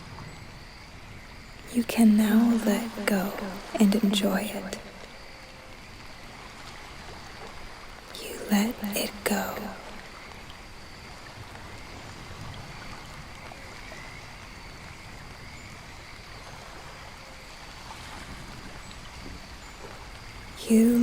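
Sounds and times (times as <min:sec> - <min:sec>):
faint steady high tones: 0:01.7 - 0:05.5, 0:08.1 - 0:10.3, 0:20.6 - 0:21.0.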